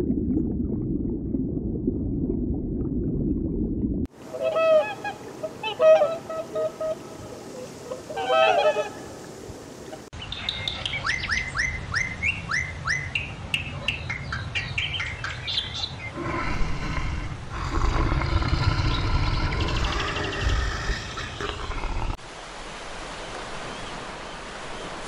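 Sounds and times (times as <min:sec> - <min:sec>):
rough low rumble: 0:00.0 - 0:04.1
bird chirping: 0:10.2 - 0:16.1.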